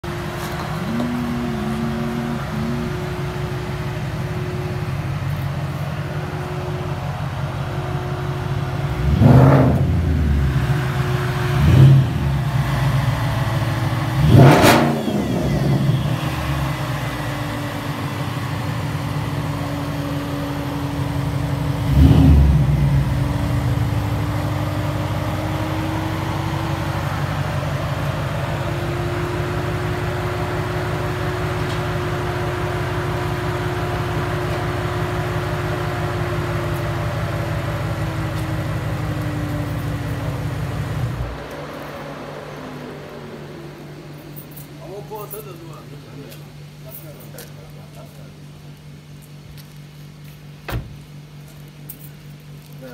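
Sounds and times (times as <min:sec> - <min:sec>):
engine revving: 0:00.0 - 0:45.3
car engine idling: 0:00.0 - 0:52.9.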